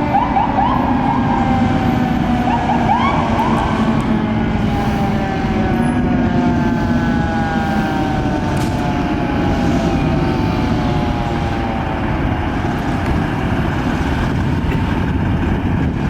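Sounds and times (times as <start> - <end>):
fire engine siren falling: 0.0 - 16.0
heavy truck engine rumble: 0.0 - 16.0
road noise: 0.0 - 16.0.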